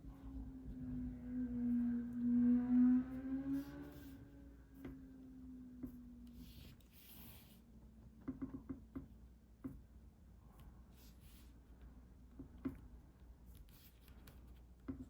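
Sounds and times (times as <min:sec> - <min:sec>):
pencil scratching on paper: 0:03.6 - 0:04.9, 0:05.8 - 0:07.6, 0:13.4 - 0:15.0.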